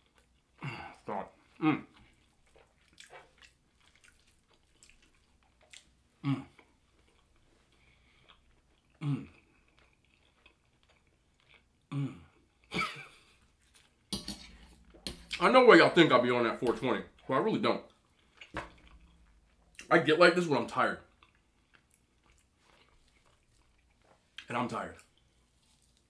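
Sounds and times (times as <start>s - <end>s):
man chewing food: 0.0s - 15.5s, 16.5s - 19.9s, 21.0s - 26.0s
fork taps: 14.1s - 15.4s.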